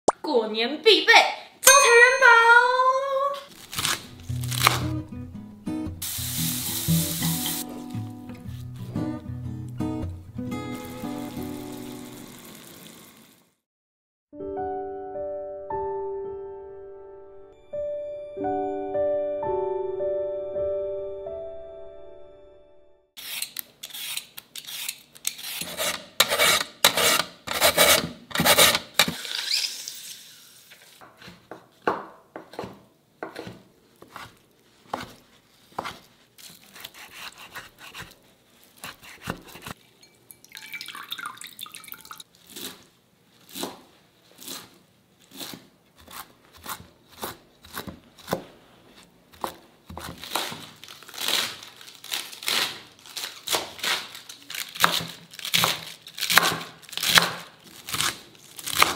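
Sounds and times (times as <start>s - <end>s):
peeler scraping carrot: 23.2s - 30.2s, 34.0s - 39.8s
knife chopping on wooden board: 31.1s - 36.1s, 36.7s - 38.2s, 38.8s - 39.8s, 45.3s - 48.5s, 49.3s - 50.6s, 54.8s - 58.1s.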